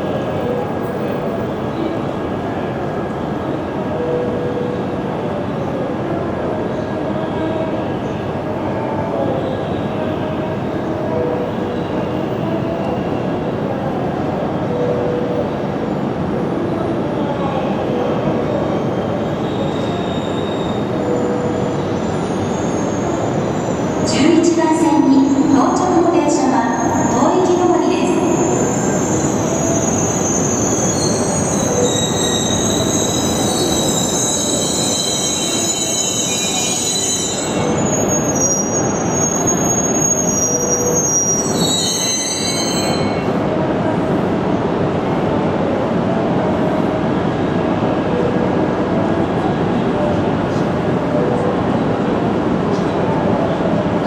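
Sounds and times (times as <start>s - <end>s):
wheels squealing: 28.4s - 43.2s.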